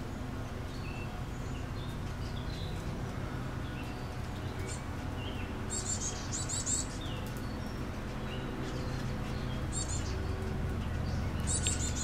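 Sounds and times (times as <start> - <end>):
low hum: 0.0 - 12.0
small birds chirping: 0.0 - 12.0.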